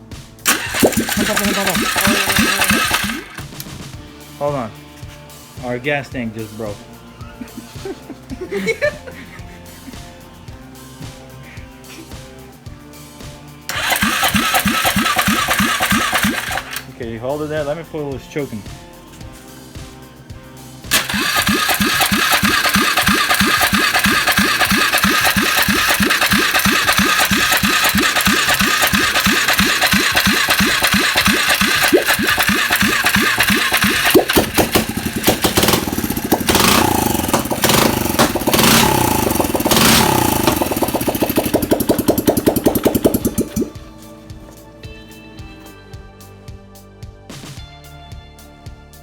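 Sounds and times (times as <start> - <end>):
four-stroke engine running: 0.0 - 4.2, 13.7 - 16.9, 20.8 - 44.6.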